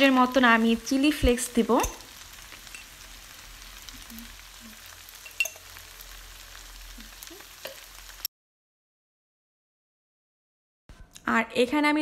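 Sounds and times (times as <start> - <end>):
food sizzling in frying pan: 0.0 - 8.3.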